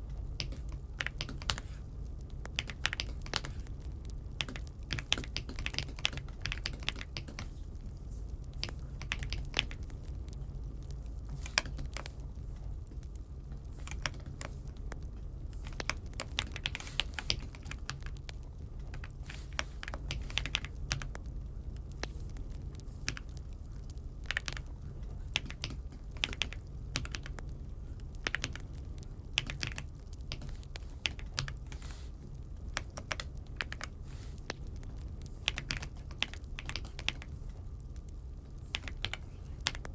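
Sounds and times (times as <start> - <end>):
keyboard keystroke clacks: 0.2 - 7.6, 15.6 - 21.2, 24.2 - 27.5, 29.4 - 31.9.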